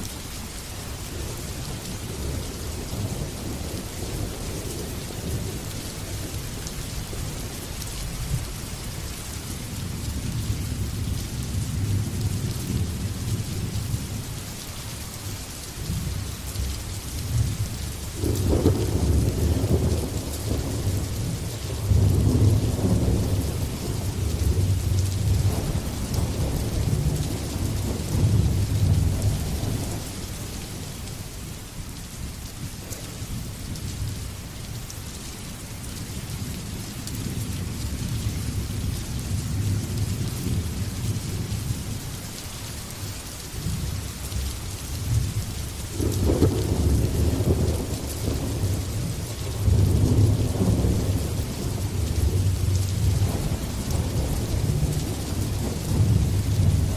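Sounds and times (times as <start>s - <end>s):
heavy rain hissing: 0.0s - 56.9s
rolling thunder: 17.3s - 30.2s, 45.1s - 56.9s.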